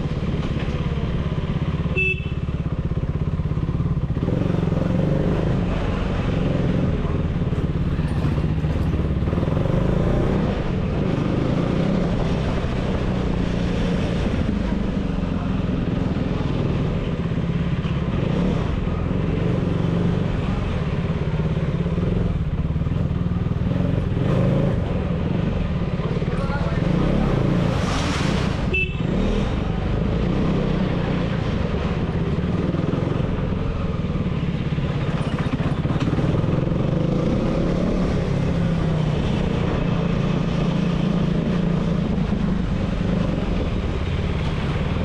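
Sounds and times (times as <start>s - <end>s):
motorcycle engine running: 0.0s - 9.9s, 28.7s - 45.0s.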